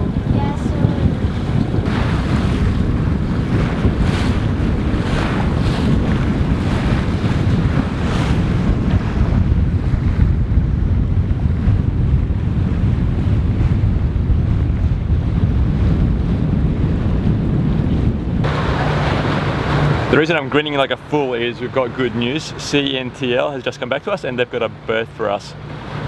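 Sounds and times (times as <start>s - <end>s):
hissing surges of water: 0.0s - 2.4s, 18.4s - 24.4s
waves splashing: 0.0s - 10.2s, 12.4s - 26.0s
wind buffeting microphone: 0.0s - 24.9s.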